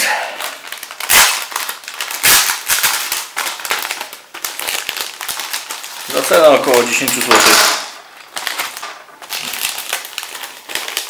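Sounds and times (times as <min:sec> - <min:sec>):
plastic bag tearing and crinkling: 0:00.0 - 0:11.0.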